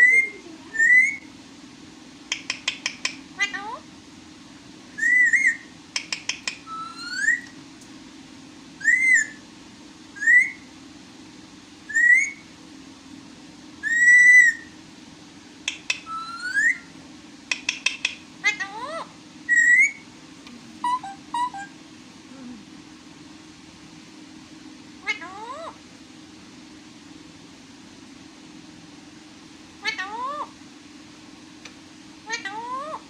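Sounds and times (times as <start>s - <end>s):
parrot whistling: 0.0s - 1.3s, 5.0s - 5.7s, 6.5s - 7.5s, 8.8s - 9.4s, 10.2s - 10.7s, 11.9s - 12.4s, 13.8s - 14.7s, 15.7s - 16.9s, 17.6s - 20.0s, 20.8s - 21.7s
parrot clicks: 2.3s - 3.2s, 5.9s - 6.7s, 15.6s - 16.1s, 17.5s - 18.2s.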